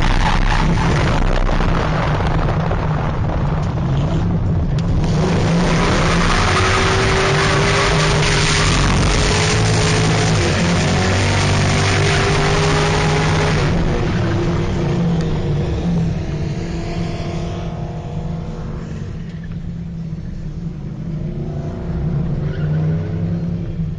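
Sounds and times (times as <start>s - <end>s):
loud rushing noise: 0.0s - 19.2s
car engine revving hard: 4.0s - 18.8s.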